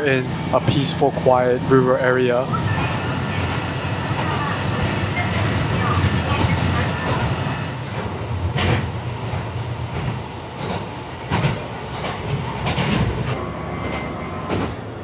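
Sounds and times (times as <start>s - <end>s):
diesel engine drone: 0.0s - 2.4s, 13.3s - 15.0s
train wheels clacking on rail joints: 7.9s - 15.0s.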